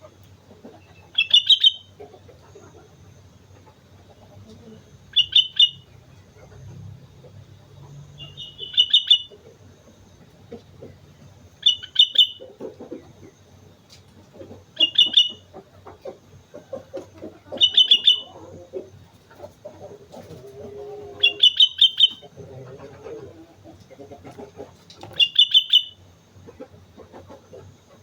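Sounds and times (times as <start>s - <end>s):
bulbul singing: 0.8s - 2.8s, 4.6s - 6.6s, 7.6s - 10.0s, 11.5s - 12.6s, 14.7s - 15.6s, 17.4s - 18.9s, 21.2s - 22.4s, 25.0s - 26.1s.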